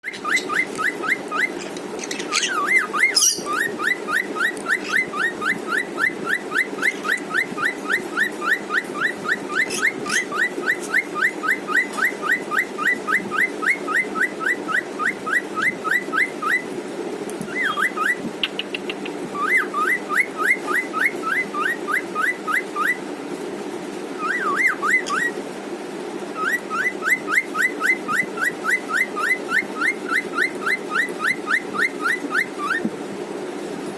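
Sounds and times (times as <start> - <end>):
bird whistling: 0.0 - 16.6, 17.5 - 18.8, 24.2 - 25.4, 26.4 - 32.8.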